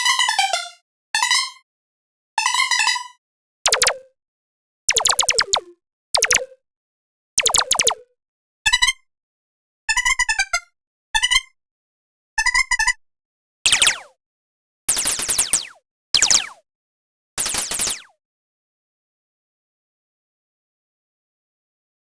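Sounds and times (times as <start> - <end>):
rapid pitched synth blips: 3.7 - 4.0, 4.9 - 6.4, 7.4 - 8.0, 13.7 - 14.1, 14.9 - 16.6, 17.4 - 18.1
downward-sweeping synth zaps: 13.7 - 14.1, 14.9 - 16.6, 17.4 - 18.1.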